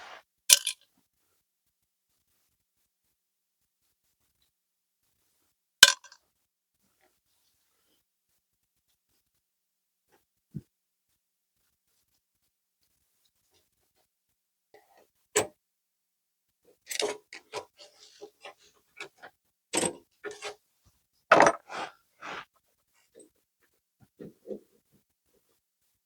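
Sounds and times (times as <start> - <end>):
hand tools clicking and knocking: 21.3 - 22.4.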